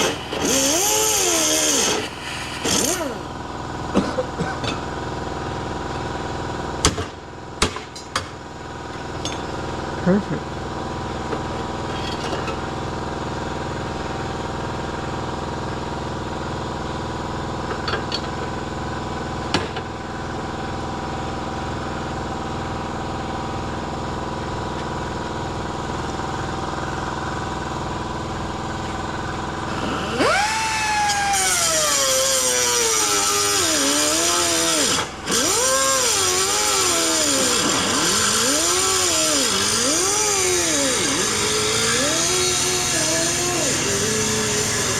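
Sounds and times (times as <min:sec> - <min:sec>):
power tool under load: 0:00.0 - 0:04.1, 0:28.9 - 0:44.9.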